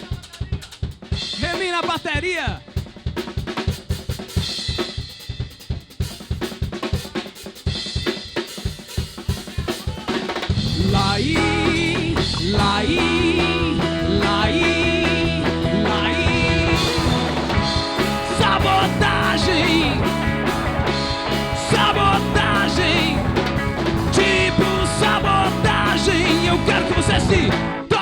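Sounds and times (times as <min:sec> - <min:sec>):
drum kit: 0:00.0 - 0:28.0
bass guitar: 0:10.5 - 0:28.0
electric guitar: 0:10.6 - 0:28.0.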